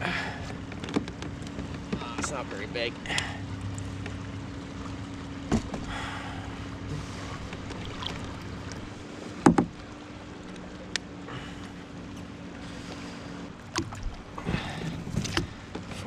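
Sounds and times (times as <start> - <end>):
steady low hum: 2.0 - 16.0
knocks in plastic kayak: 9.4 - 9.8.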